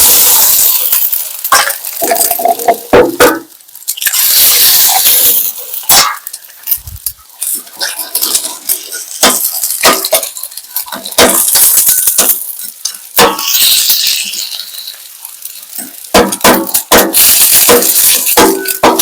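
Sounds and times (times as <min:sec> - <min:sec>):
food sizzling in a pan: 0:00.0 - 0:19.0
utensil scraping a pan: 0:00.3 - 0:19.0.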